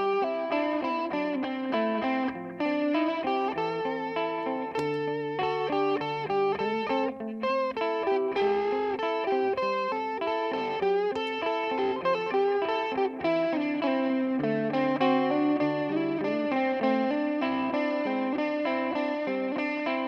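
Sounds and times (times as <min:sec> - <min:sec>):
electric guitar with delay: 0:00.0 - 0:20.0.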